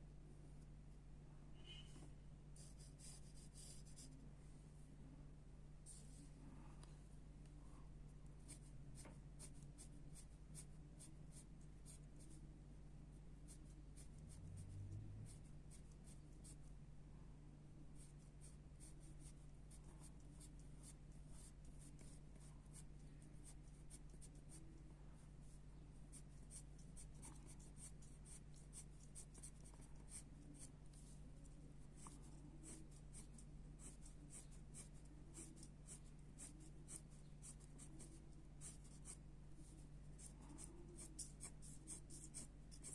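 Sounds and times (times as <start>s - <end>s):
low steady hum: 0.0s - 42.9s
pencil scratching on paper: 2.6s - 4.2s, 8.4s - 12.4s, 13.5s - 16.7s, 18.0s - 42.9s.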